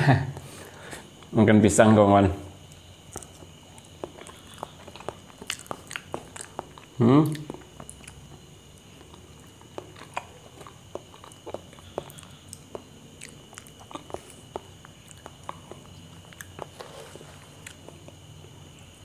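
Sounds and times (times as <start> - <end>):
wet chewing smacks and clicks: 2.7 - 16.7.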